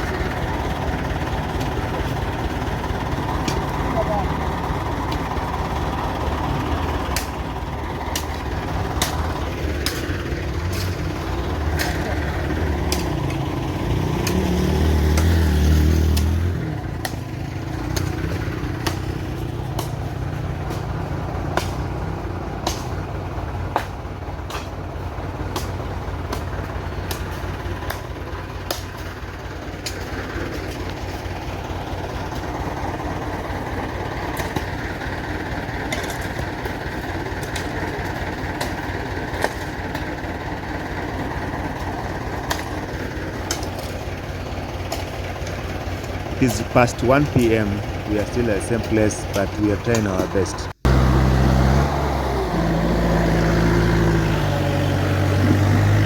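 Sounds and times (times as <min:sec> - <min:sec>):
tractor engine under load: 0:00.0 - 0:56.0.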